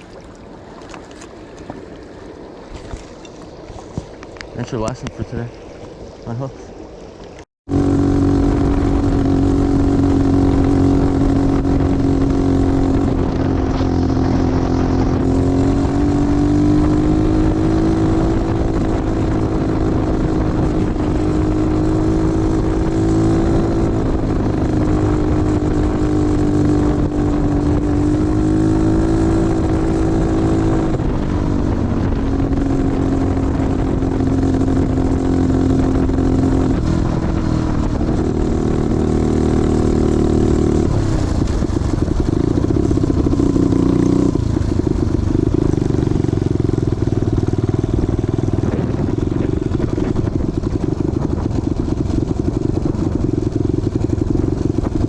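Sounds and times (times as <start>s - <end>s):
engine humming: 0.0s - 55.0s.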